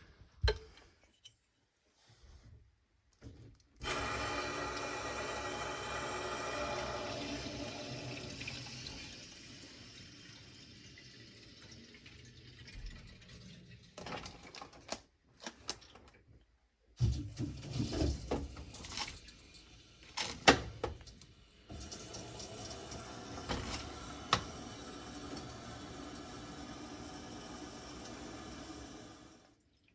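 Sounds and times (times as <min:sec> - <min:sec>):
water rushing through pipes: 0:03.8 - 0:14.5, 0:21.0 - 0:29.9.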